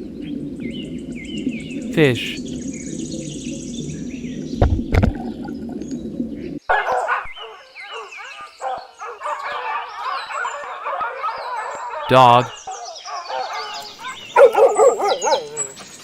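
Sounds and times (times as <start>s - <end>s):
low rumbling water-like noise: 0.0s - 6.6s
small birds chirping: 0.0s - 6.6s, 7.4s - 16.0s.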